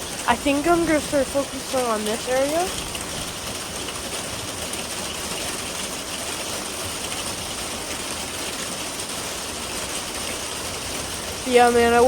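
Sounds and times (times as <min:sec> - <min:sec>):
steady rain hissing: 0:00.0 - 0:12.0.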